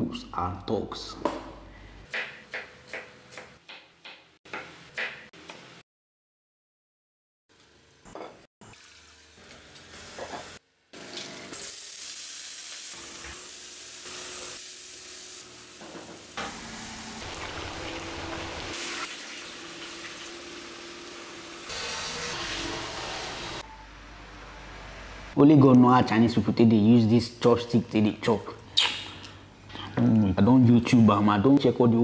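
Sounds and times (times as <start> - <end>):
food sizzling in a wok: 7.5 - 8.0, 8.6 - 23.6.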